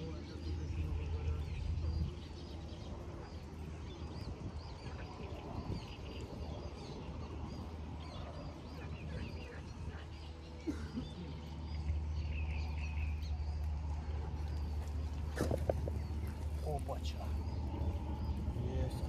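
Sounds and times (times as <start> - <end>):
low steady rumble: 0.0 - 19.0
small birds chirping: 0.0 - 19.0.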